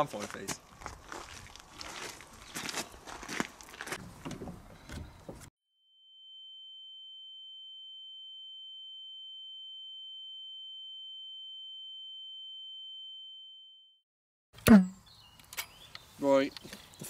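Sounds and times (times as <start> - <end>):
outdoor ambience: 0.0 - 5.5, 14.6 - 17.0.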